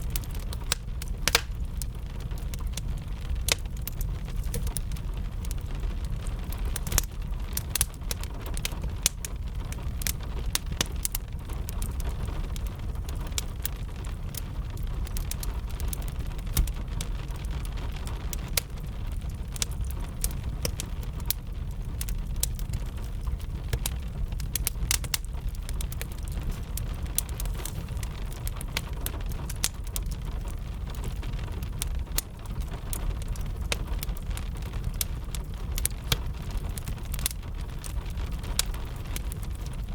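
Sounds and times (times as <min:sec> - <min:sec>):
low constant rumble: 0:00.0 - 0:39.9
wood fire crackling and popping: 0:00.0 - 0:39.9
rain hissing: 0:25.3 - 0:33.2.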